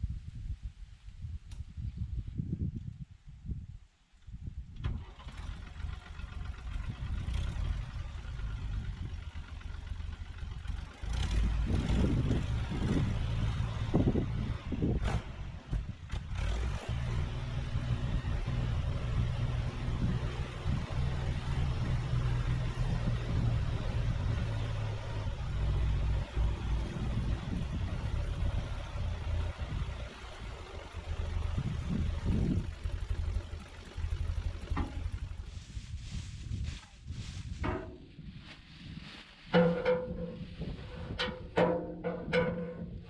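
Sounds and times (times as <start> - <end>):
sawmill engine running: 5.0 - 35.8.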